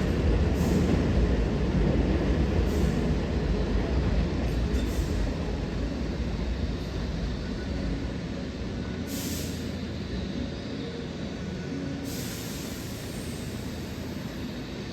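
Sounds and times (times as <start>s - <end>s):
electric train rumble: 0.0s - 14.9s
hiss bursts: 9.1s - 9.7s, 12.1s - 14.2s.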